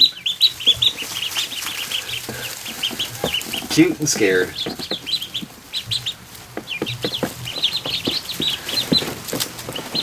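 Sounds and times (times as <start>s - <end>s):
ducklings peeping: 0.0s - 10.0s.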